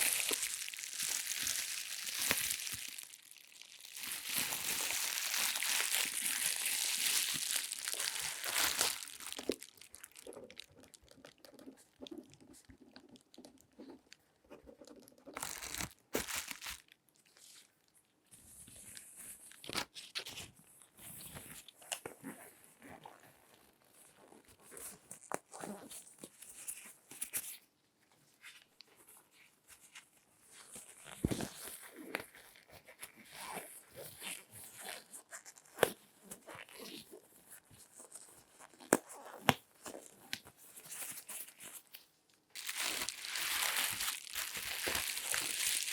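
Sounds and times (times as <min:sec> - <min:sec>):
hands handling objects: 0:00.0 - 0:10.9, 0:15.3 - 0:16.8, 0:42.6 - 0:45.9
crinkling and rustling: 0:00.0 - 0:45.9.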